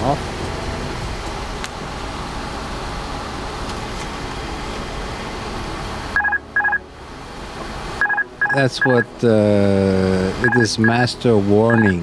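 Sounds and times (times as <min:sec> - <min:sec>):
cockpit background rush: 0:00.0 - 0:12.0
short electronic beeps: 0:06.2 - 0:06.8, 0:08.0 - 0:09.1, 0:10.4 - 0:11.0, 0:11.7 - 0:12.0.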